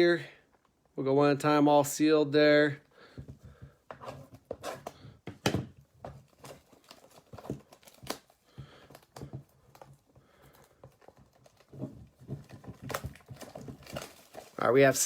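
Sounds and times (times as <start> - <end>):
plastic shrink-wrap tearing and crinkling: 6.3 - 8.4, 10.6 - 15.0.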